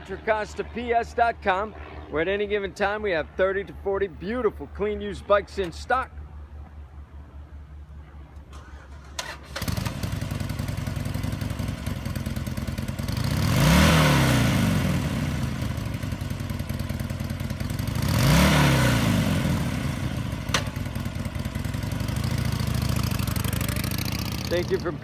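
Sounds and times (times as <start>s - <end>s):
motorcycle engine idling: 6.2s - 13.5s, 14.6s - 18.3s, 19.1s - 25.0s
motorcycle engine starting: 8.4s - 25.0s
motorcycle engine revving: 8.6s - 25.0s.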